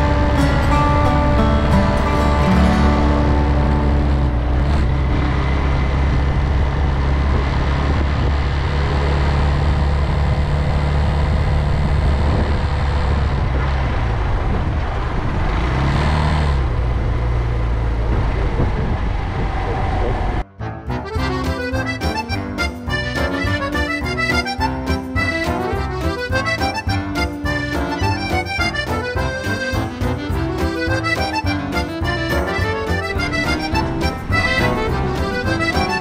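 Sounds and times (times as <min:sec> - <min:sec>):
motorcycle engine running: 0:00.0 - 0:15.6
road and wind noise: 0:00.0 - 0:36.0.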